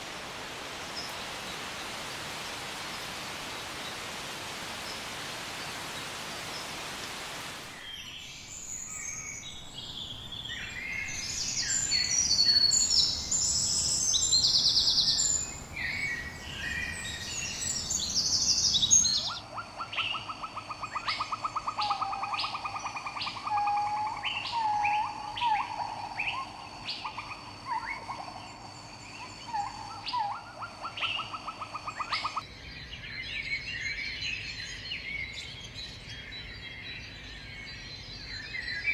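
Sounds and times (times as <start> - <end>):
steady hiss: 0.0 - 19.2.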